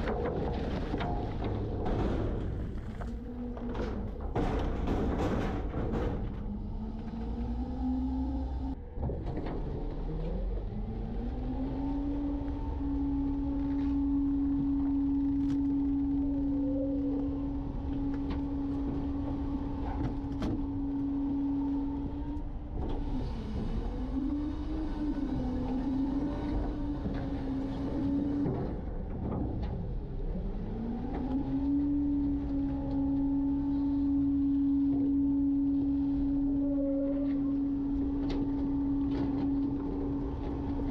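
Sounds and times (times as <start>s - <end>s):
garbage truck engine droning: 0.0s - 40.9s
steady whine: 11.2s - 28.7s, 31.0s - 40.9s.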